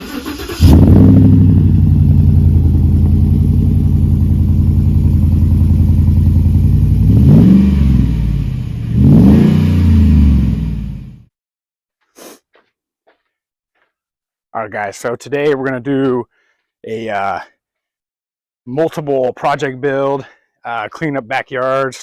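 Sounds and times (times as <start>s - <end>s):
engine running and revving: 0.3s - 11.3s.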